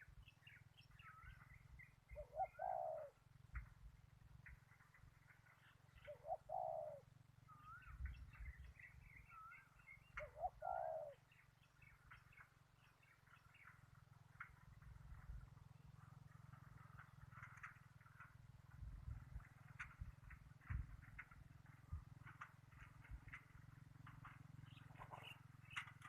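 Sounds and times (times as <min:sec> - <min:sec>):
small birds chirping: 0:00.0 - 0:18.2, 0:22.7 - 0:26.0
dove cooing: 0:02.1 - 0:03.2, 0:06.0 - 0:07.1, 0:10.2 - 0:11.2.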